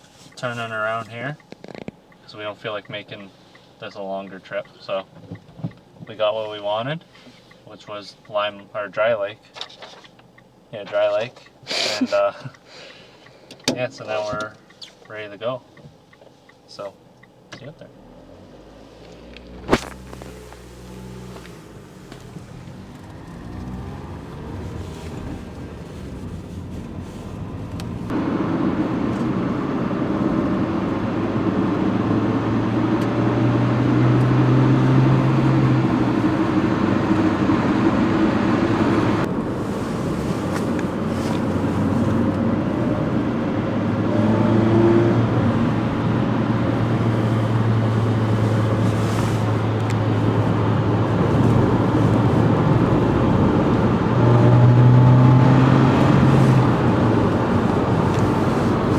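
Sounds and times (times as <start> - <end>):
car engine driving: 13.5 - 58.9
tyre and road noise: 17.6 - 58.9.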